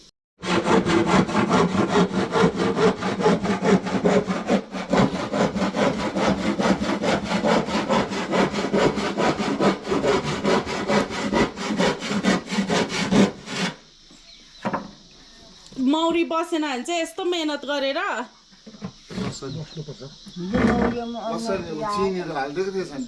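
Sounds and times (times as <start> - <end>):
handsaw cutting through wood: 0.4 - 13.8.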